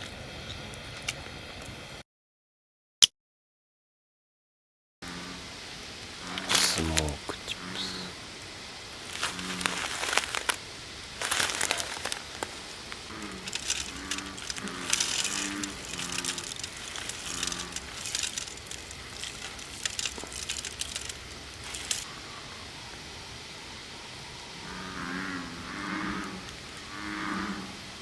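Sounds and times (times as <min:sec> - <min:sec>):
frogs croaking: 0:05.0 - 0:28.0
gear clicking and rustling: 0:09.1 - 0:10.6, 0:11.2 - 0:22.1.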